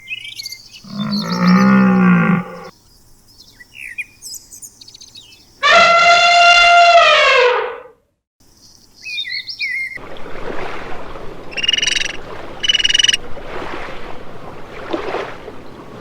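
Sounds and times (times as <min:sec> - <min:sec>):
outdoor background hiss: 0:00.3 - 0:05.6, 0:07.8 - 0:13.3
animal gliding chirps: 0:00.8 - 0:02.7.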